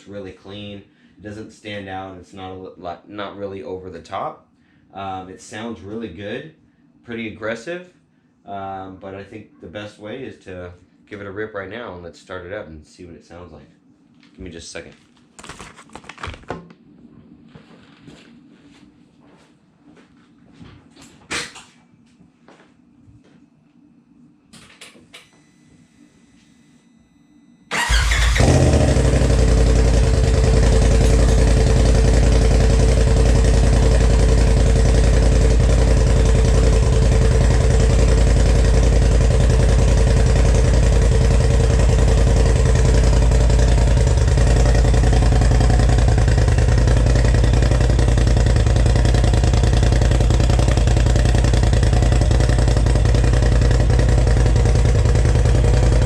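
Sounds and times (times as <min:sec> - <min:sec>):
engine starting and idling: 0:27.7 - 0:34.0.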